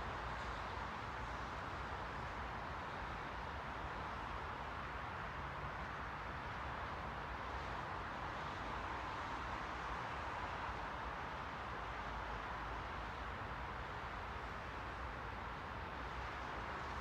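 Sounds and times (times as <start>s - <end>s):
white noise hiss: 0.0s - 17.0s.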